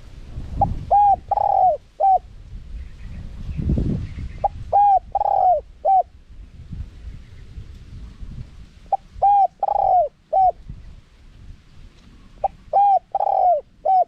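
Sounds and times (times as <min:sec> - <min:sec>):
dove cooing: 0:00.6 - 0:02.2, 0:04.4 - 0:06.1, 0:08.9 - 0:10.6, 0:12.4 - 0:14.0.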